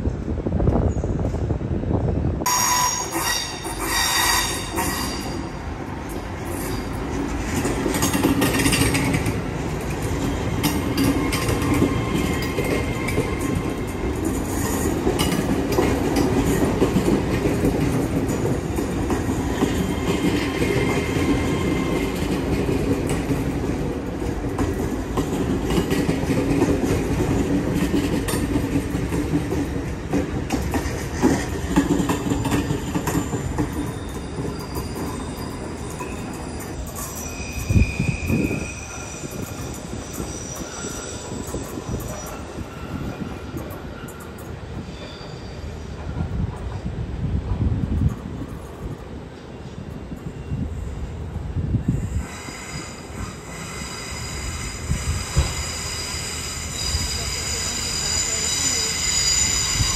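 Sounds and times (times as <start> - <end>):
train wheels rumbling on rails: 0.0 - 59.9
high-pitched wheel squealing: 33.8 - 43.4, 52.2 - 59.9.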